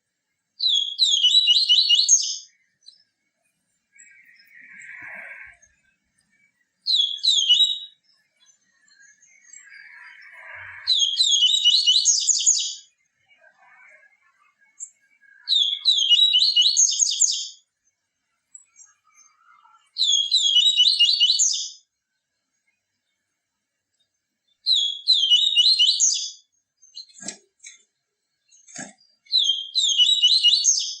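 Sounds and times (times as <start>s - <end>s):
bird singing high chirping notes: 0.6s - 3.0s, 4.0s - 13.0s, 14.6s - 17.6s, 18.6s - 21.8s, 24.6s - 27.1s, 29.3s - 31.0s.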